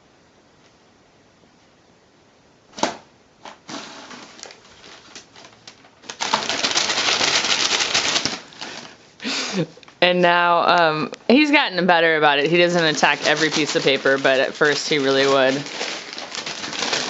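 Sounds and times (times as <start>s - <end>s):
paper crinkling and rustling: 3.4s - 9.0s, 12.4s - 17.0s.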